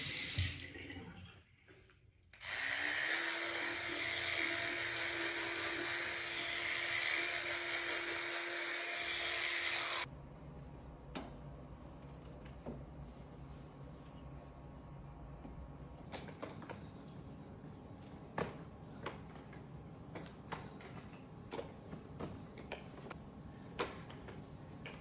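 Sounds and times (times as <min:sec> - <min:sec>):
small electric motor whirring: 0:02.3 - 0:10.1.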